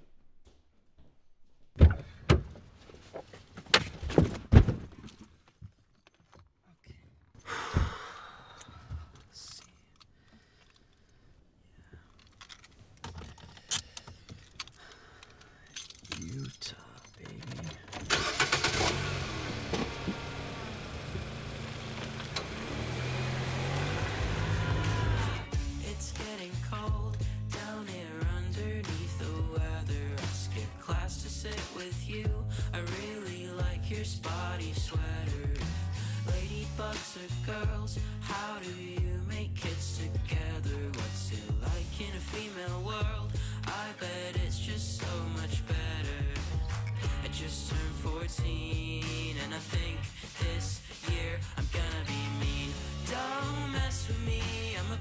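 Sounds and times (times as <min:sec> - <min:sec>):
clicks and rattles: 0:11.9 - 0:20.6
car engine running: 0:17.7 - 0:25.6.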